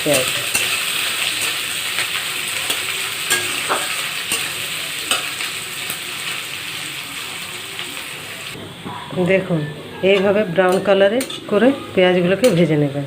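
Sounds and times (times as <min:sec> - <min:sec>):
onions sizzling in hot oil: 0:00.0 - 0:08.6
spoon scraping a pan: 0:00.4 - 0:05.6.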